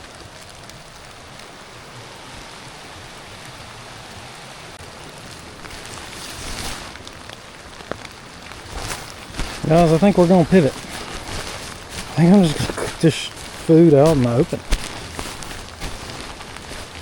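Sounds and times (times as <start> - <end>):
steady rain falling: 0.0 - 17.0
rustling: 5.1 - 17.0.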